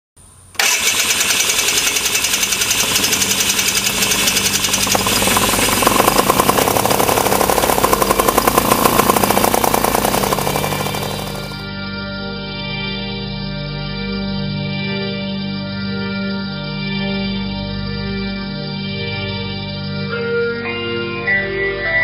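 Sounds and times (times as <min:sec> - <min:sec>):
small aircraft engines buzzing: 0:00.2 - 0:11.7.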